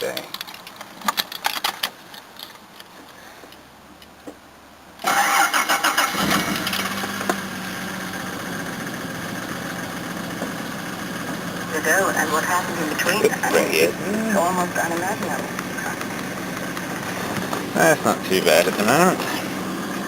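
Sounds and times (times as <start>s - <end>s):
car engine idling: 1.9s - 20.0s
starter cranking: 5.0s - 20.0s.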